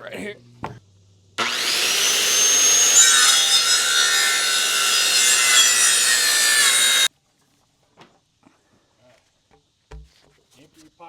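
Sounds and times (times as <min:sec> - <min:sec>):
saw cutting wooden board: 0:01.4 - 0:07.1.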